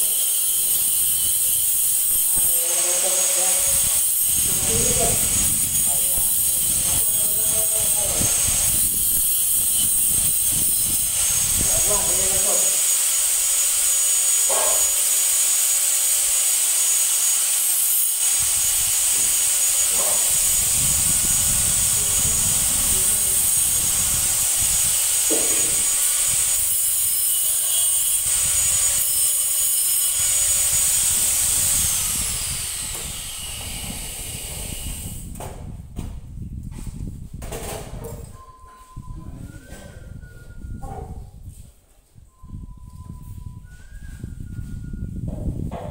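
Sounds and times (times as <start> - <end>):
loud high-pitched gas hiss: 0.0 - 35.4.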